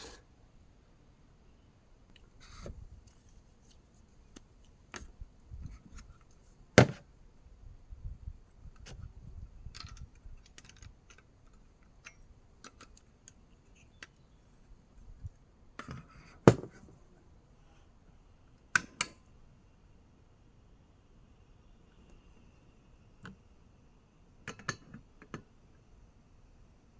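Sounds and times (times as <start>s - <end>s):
knocks of objects handled: 6.8s - 7.1s, 15.8s - 17.0s
small clicks of objects handled: 8.7s - 14.4s.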